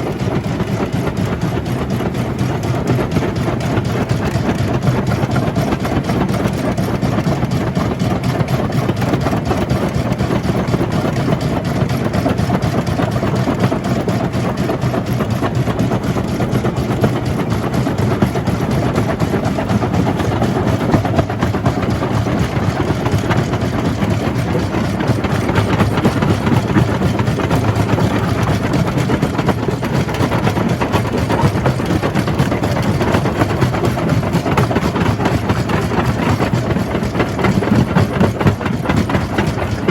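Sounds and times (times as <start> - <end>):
jaw crusher mechanical drone: 15.4 - 39.9.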